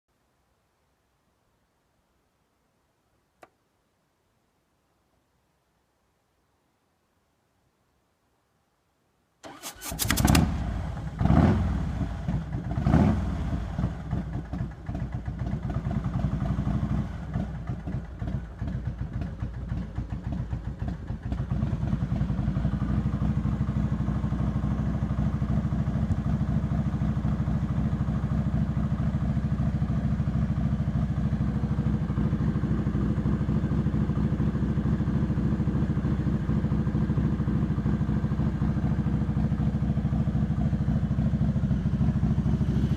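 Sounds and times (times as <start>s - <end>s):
motorcycle engine revving and idling: 9.4s - 42.9s.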